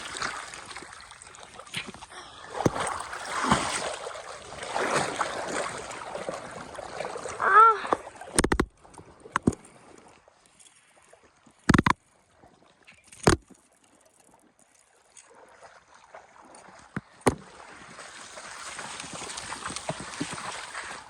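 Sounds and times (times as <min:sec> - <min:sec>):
water splashing and rushing: 0:00.0 - 0:10.2, 0:15.3 - 0:21.0
sharp knocks: 0:11.7 - 0:12.0.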